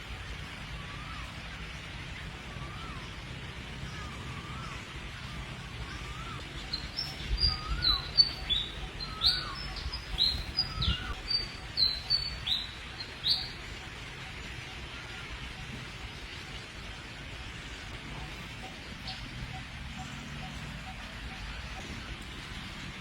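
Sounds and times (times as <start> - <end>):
bird chirping: 5.8 - 13.8.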